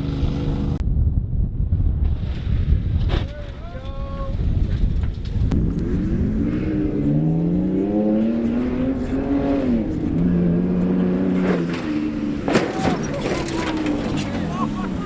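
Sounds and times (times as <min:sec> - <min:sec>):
truck engine accelerating: 0:00.0 - 0:00.8, 0:05.2 - 0:15.0
road and wind rumble: 0:00.0 - 0:15.0.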